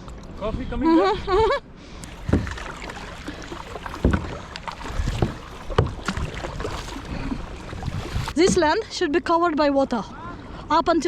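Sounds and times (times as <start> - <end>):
water washing: 2.0 - 8.9
kayak paddle splashing: 2.0 - 9.0.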